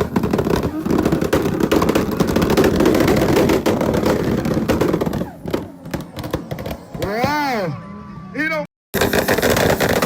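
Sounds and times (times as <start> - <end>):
exhaust crackling pops: 0.0 - 7.4.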